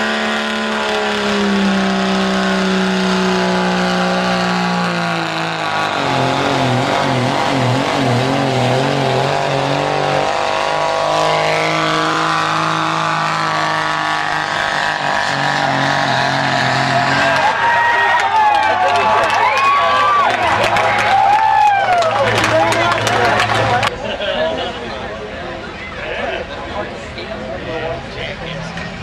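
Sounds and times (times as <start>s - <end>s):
diesel truck engine under load: 0.0s - 24.0s.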